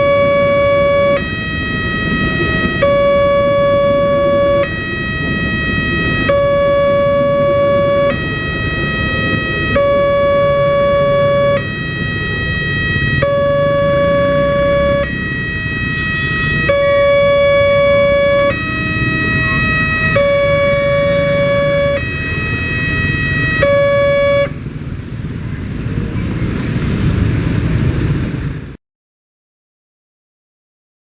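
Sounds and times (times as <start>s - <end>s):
level crossing two-tone siren: 0.0s - 24.7s.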